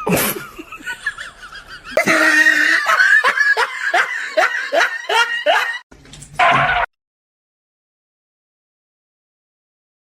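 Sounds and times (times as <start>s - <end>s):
person laughing hard: 0.0s - 5.8s.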